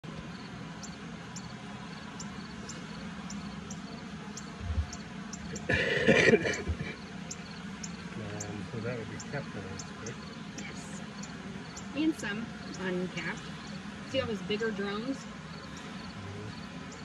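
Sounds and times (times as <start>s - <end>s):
bees buzzing: 0.0s - 17.0s
faint high-pitched ticks: 2.2s - 5.6s.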